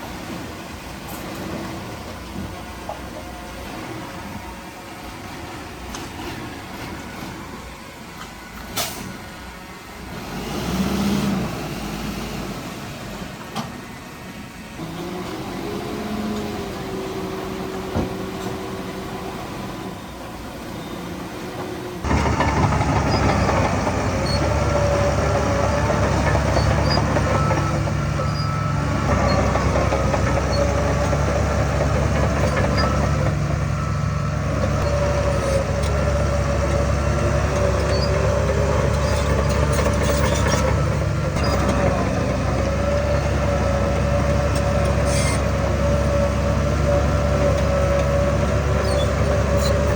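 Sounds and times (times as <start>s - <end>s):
heavy machinery diesel engines: 0.0s - 49.9s.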